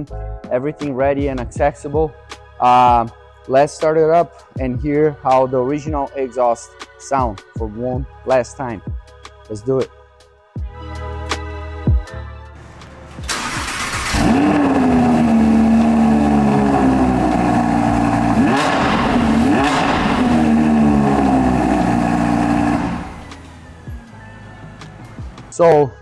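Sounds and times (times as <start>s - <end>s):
car engine starting and idling: 12.6s - 25.6s.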